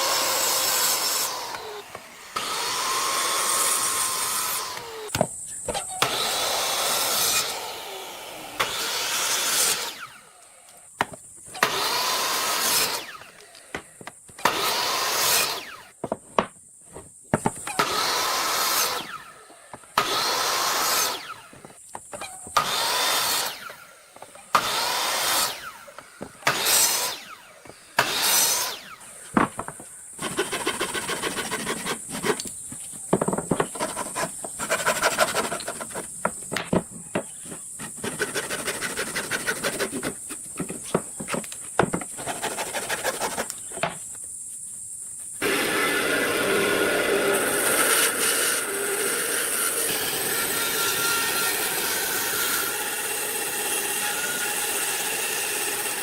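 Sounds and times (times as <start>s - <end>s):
wood rasping strokes: 29.6s - 43.7s.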